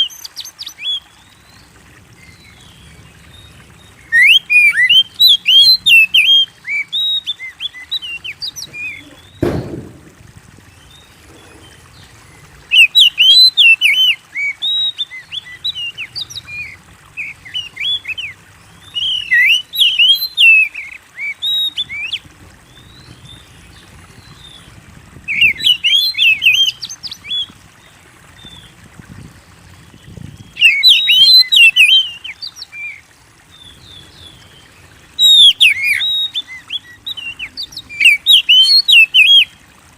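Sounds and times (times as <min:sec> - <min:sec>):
bird singing whistled phrases: 0:04.0 - 0:09.9, 0:12.7 - 0:16.4, 0:17.2 - 0:22.2, 0:25.3 - 0:27.5, 0:30.6 - 0:33.0, 0:35.2 - 0:39.5
dull thump: 0:09.4 - 0:10.4.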